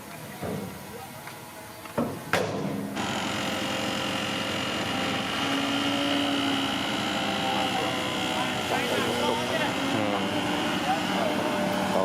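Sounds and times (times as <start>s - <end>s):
bulldozer diesel engine running: 3.0s - 12.0s.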